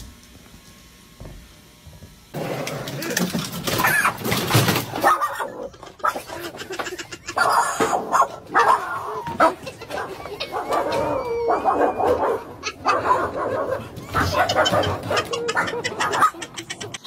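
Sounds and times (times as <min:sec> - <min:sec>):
dogs barking: 0:03.7 - 0:17.0.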